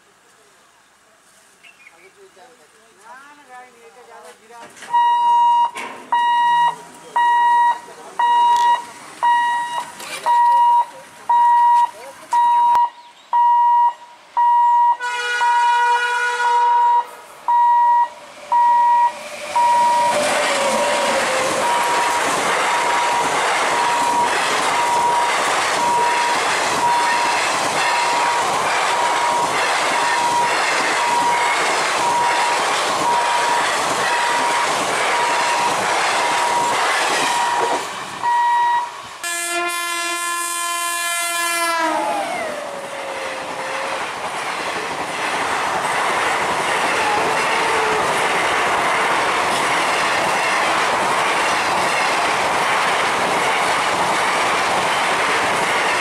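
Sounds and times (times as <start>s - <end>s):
train coaches clattering past: 4.1s - 13.6s, 14.4s - 56.0s
regular beeping tone: 4.9s - 15.0s, 16.7s - 20.2s, 21.6s - 27.4s, 29.1s - 33.4s
locomotive horn: 14.6s - 17.9s, 18.6s - 28.4s, 37.2s - 44.0s.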